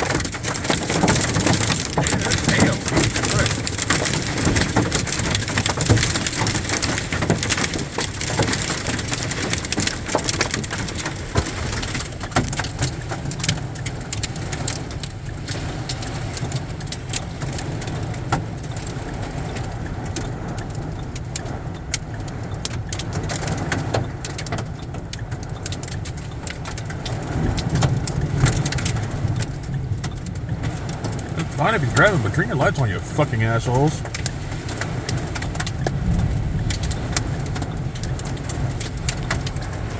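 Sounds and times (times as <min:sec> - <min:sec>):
low traffic rumble: 0:00.0 - 0:18.2, 0:29.0 - 0:39.9
heavy rain falling: 0:00.0 - 0:39.9.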